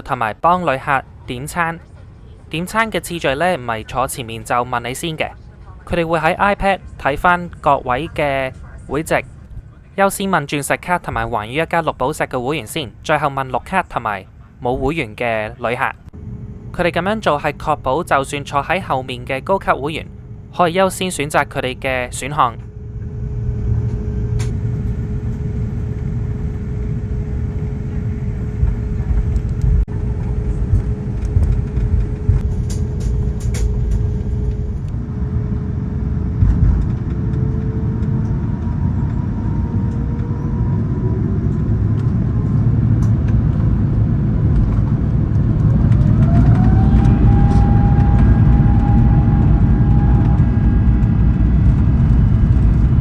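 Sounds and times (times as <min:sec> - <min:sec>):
airliner cabin rumble: 0:00.0 - 0:53.0
jet engines spooling up whine: 0:16.0 - 0:53.0.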